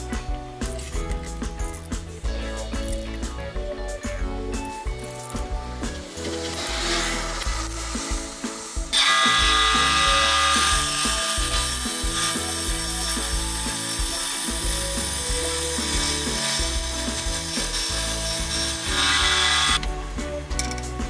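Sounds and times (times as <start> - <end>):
background music: 0.0 - 21.0
bandsaw cutting wood: 6.0 - 19.8.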